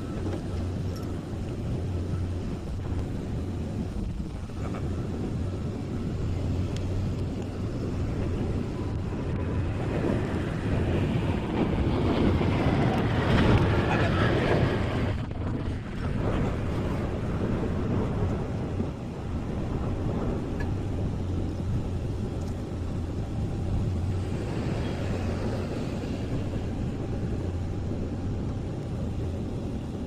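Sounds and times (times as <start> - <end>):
diesel engine humming: 0.0 - 30.0.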